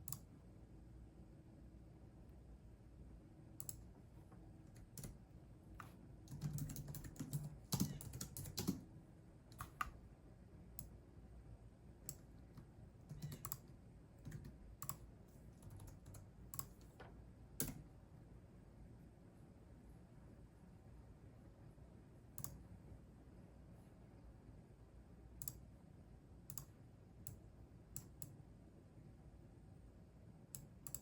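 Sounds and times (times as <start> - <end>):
typing on computer keyboard: 4.7 - 5.2, 5.8 - 8.9, 9.5 - 10.0, 12.1 - 17.0, 17.6 - 17.8, 30.6 - 31.0.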